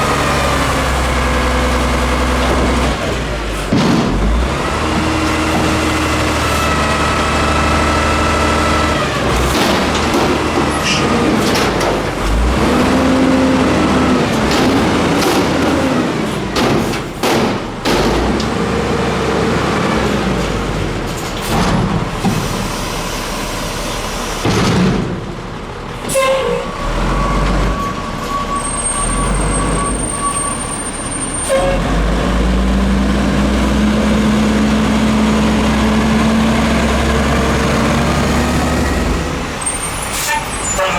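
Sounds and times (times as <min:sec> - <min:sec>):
garbage truck diesel engine: 0:00.0 - 0:40.9
metal bangs and clanks: 0:02.4 - 0:06.3, 0:09.2 - 0:18.7, 0:20.2 - 0:22.7, 0:24.4 - 0:25.4.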